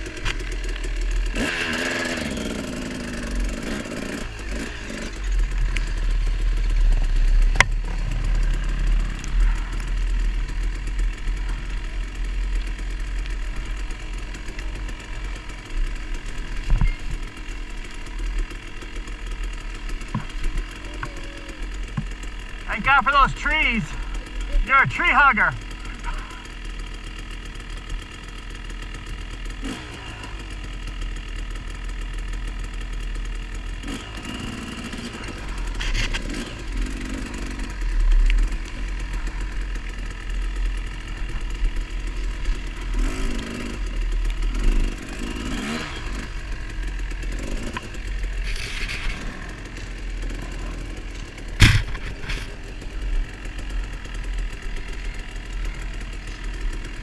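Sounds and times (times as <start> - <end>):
off-road motorcycle engine revving: 0.0 - 57.0
sharp knock: 51.6 - 52.1.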